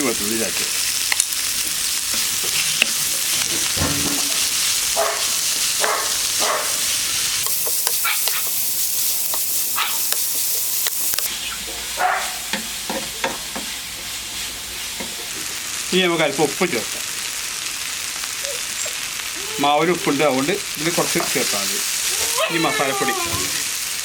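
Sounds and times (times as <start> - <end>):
vegetables sizzling in hot oil: 0.0 - 24.0
spatula scraping a pan: 11.7 - 15.5.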